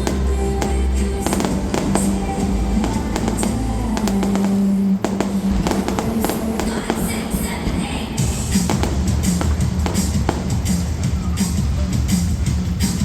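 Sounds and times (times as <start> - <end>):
fireworks bangs and crackles: 0.0 - 13.0
loud music: 0.0 - 13.0.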